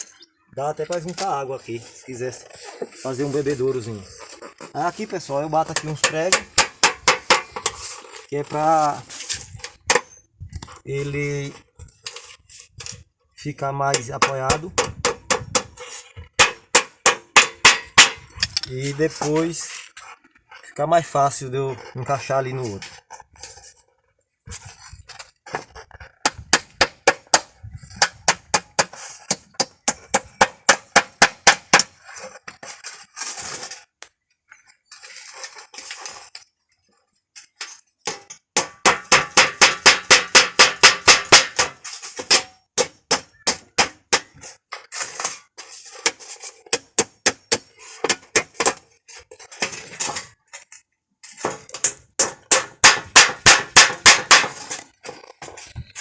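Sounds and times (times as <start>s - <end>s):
hammer driving nails into rubber: 6.0s - 7.8s, 14.2s - 15.8s, 16.4s - 18.2s, 26.2s - 32.0s, 38.1s - 44.4s, 46.0s - 48.8s, 51.8s - 54.8s.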